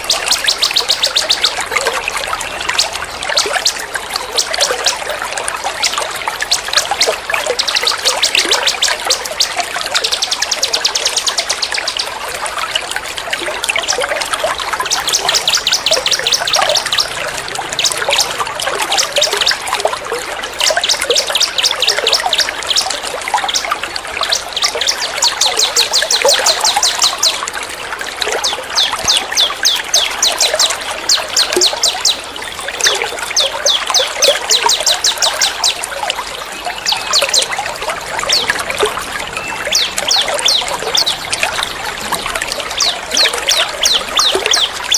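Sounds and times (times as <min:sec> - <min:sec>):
trickle of running water: 0:00.0 - 0:44.9
songbird rattling trills: 0:36.7 - 0:44.9.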